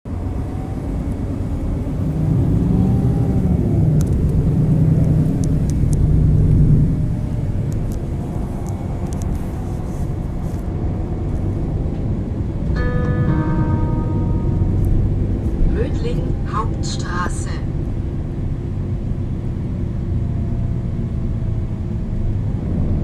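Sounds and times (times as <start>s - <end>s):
bus diesel engine running: 0.1s - 23.0s
stop announcement chime: 12.8s - 17.7s.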